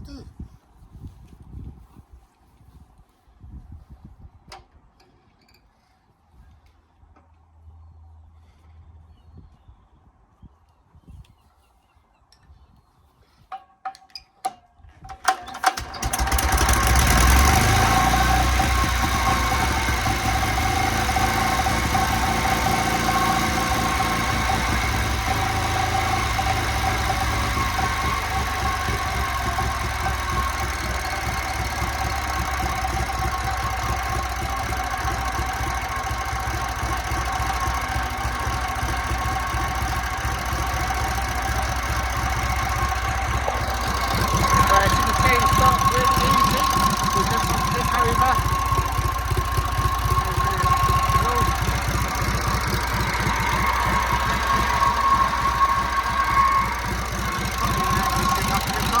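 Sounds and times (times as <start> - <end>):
stationary engine starting and running: 15.1 - 59.0.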